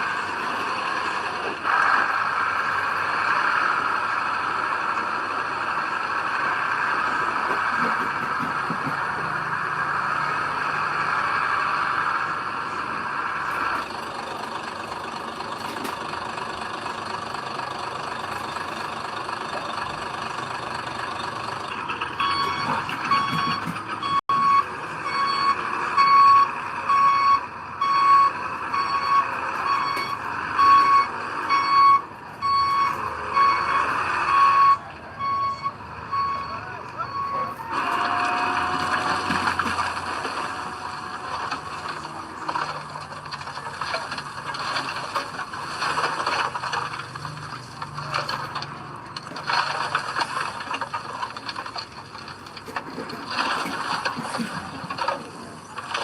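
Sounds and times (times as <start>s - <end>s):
heavy diesel machinery running: 0.0s - 56.0s
reversing alarm beeping: 22.2s - 39.3s.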